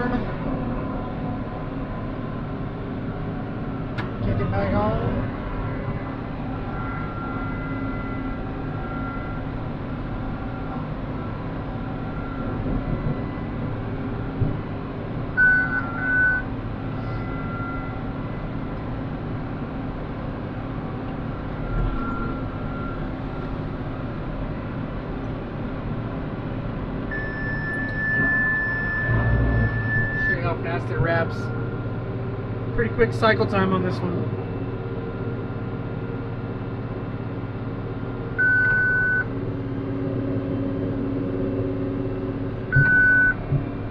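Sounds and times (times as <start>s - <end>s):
short electronic beeps: 15.4s - 16.4s, 27.1s - 30.5s, 38.4s - 39.3s, 42.8s - 43.4s
tractor engine running under load: 27.8s - 43.9s.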